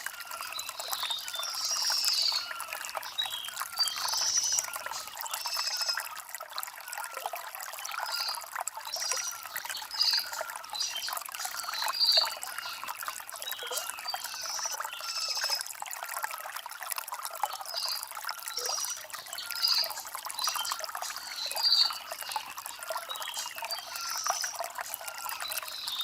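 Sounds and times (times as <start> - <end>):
stream trickling over stones: 0.0 - 26.0.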